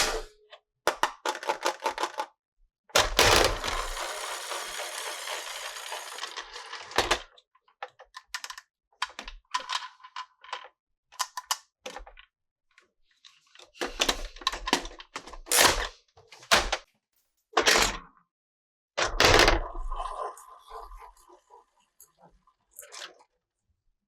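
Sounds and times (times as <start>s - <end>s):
plastic toy pieces clicking: 3.0s - 7.2s.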